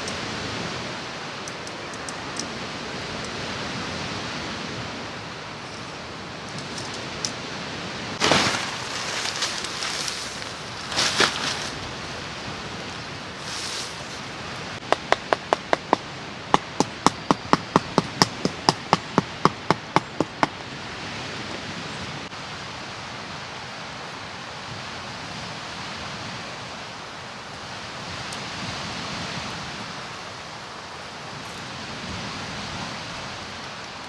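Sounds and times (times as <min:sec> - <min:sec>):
steady outdoor hiss: 0:00.0 - 0:34.0
sharp knocks: 0:16.6 - 0:20.6.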